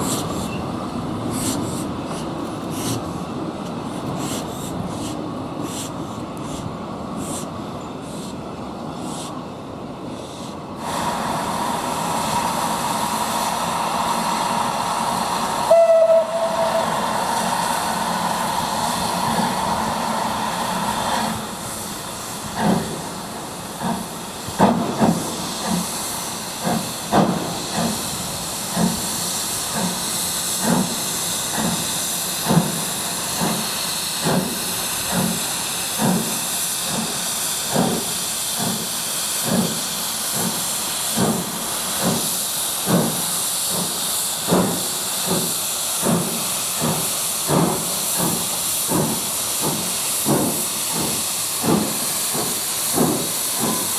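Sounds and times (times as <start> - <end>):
steam hissing: 0.0 - 9.4, 10.0 - 53.9
steam locomotive exhaust chuffs: 0.0 - 53.9
steam whistle blast: 15.6 - 17.6.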